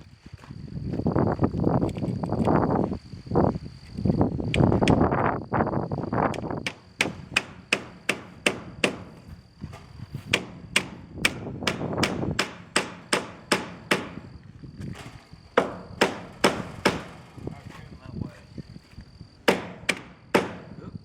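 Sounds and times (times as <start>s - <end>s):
hammer on metal siding: 6.3s - 9.3s, 10.2s - 14.4s, 15.0s - 17.4s, 19.4s - 20.8s.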